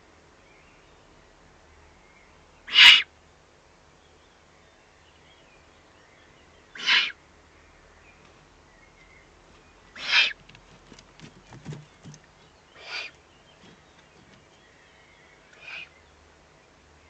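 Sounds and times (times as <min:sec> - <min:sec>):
owls giving harsh hissing calls: 0:02.7 - 0:03.1, 0:06.7 - 0:07.2, 0:10.0 - 0:10.4, 0:12.8 - 0:13.2, 0:15.6 - 0:16.0.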